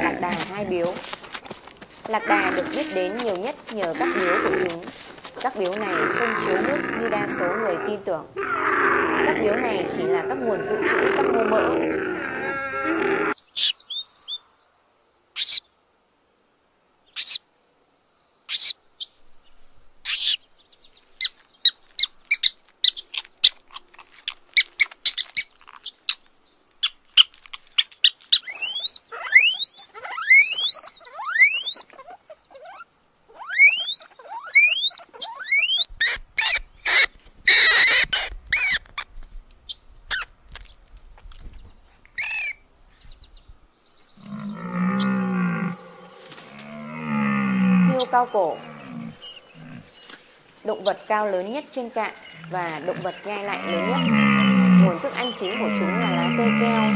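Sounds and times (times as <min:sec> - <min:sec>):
rodents squeaking: 0:26.8 - 0:38.8, 0:42.2 - 0:42.6.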